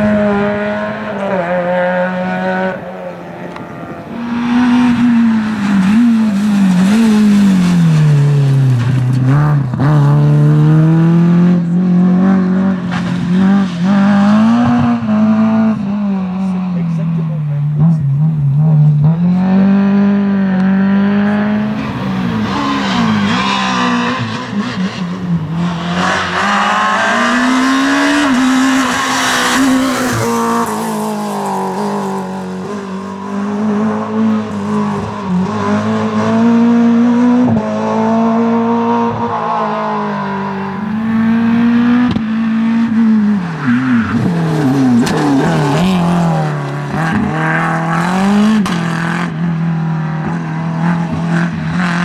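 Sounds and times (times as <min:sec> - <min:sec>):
rally car engine revving: 0:00.0 - 0:52.0.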